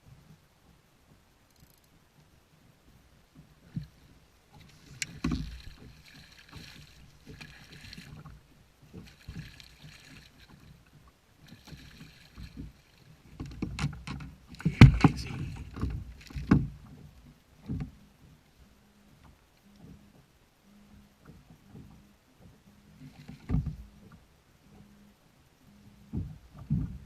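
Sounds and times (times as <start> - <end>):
knocks and bumps against kayak: 3.4 - 10.6, 12.3 - 18.0, 21.8 - 24.2, 26.1 - 27.0
water splashing: 3.6 - 17.1.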